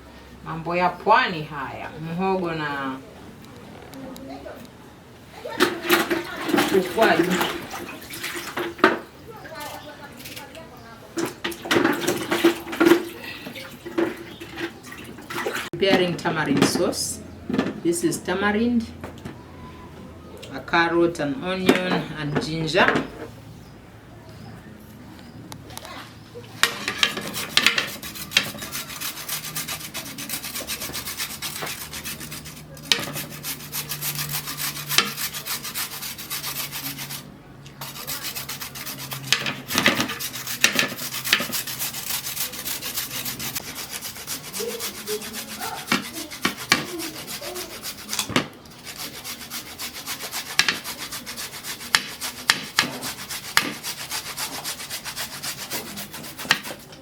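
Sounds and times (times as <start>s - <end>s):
vegetables grated on grater: 5.6s - 9.7s, 11.4s - 13.2s, 26.6s - 37.2s, 37.8s - 56.9s.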